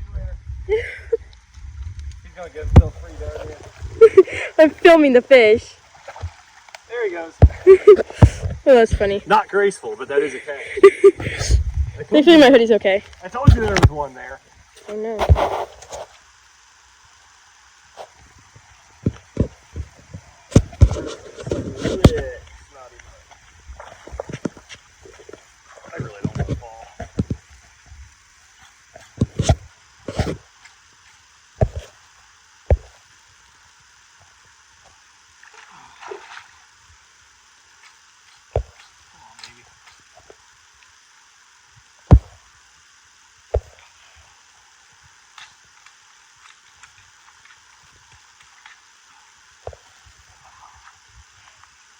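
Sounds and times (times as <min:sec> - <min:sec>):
faint steady hiss: 0:00.0 - 0:51.9
dull thumps and knocks: 0:07.4 - 0:09.1, 0:20.5 - 0:22.2.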